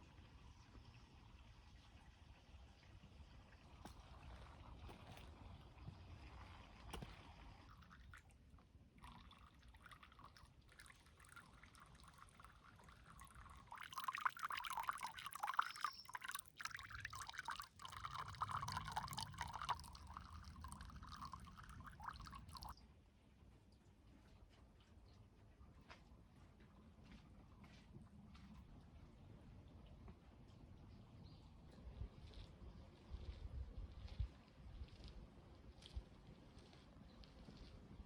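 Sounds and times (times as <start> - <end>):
water trickling and splashing: 3.9 - 22.8.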